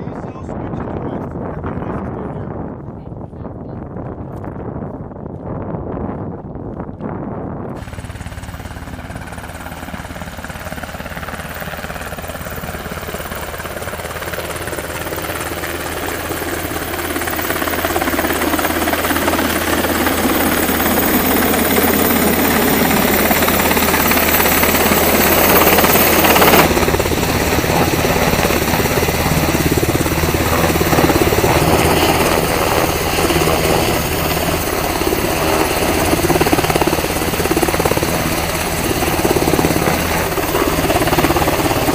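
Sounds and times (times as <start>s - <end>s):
helicopter engines and rotors: 6.6s - 41.9s.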